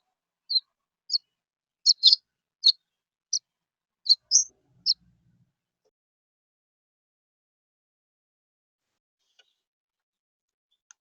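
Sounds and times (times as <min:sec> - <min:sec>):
bird chirping: 0:00.0 - 0:03.4, 0:04.1 - 0:05.0.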